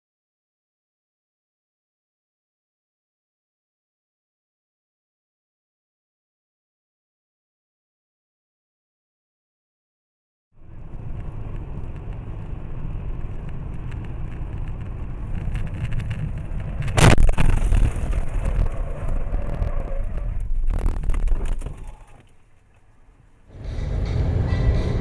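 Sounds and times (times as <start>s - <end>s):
car interior road rumble: 10.6s - 25.0s
loud sudden impact: 16.9s - 18.7s.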